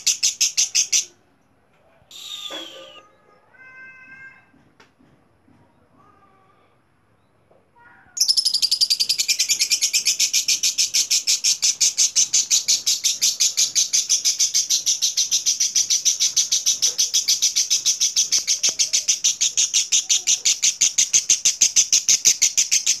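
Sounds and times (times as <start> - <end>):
lovebird chattering chirps: 2.1 - 3.0, 8.2 - 23.0.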